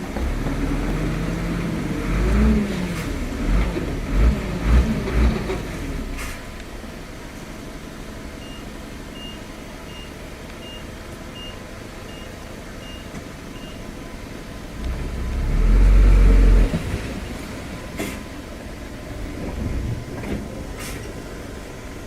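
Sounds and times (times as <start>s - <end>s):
low engine rumble: 0.0s - 22.0s
vehicle backup alarm beeps: 8.4s - 13.9s.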